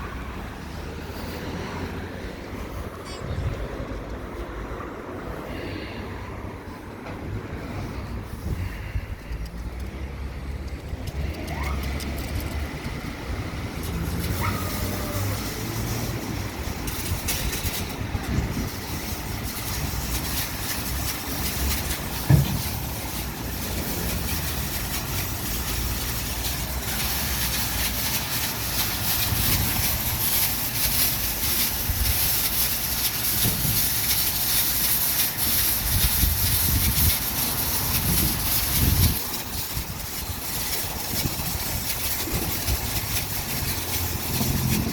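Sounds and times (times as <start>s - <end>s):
water spray hissing: 7.4s - 44.9s
short thump: 22.3s - 22.8s.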